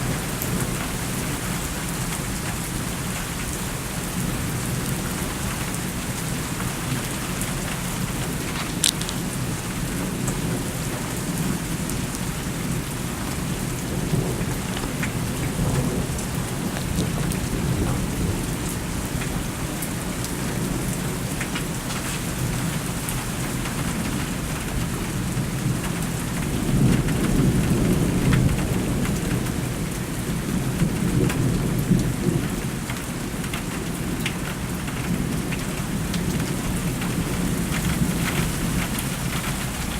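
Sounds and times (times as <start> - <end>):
steady rain: 0.0 - 39.9
rolling thunder: 12.6 - 21.2.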